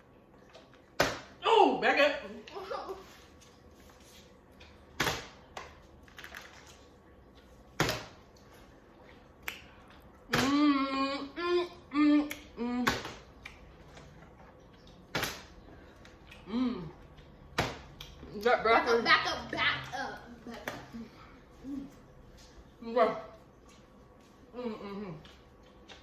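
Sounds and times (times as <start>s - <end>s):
person making ooh sounds: 10.3s - 13.0s.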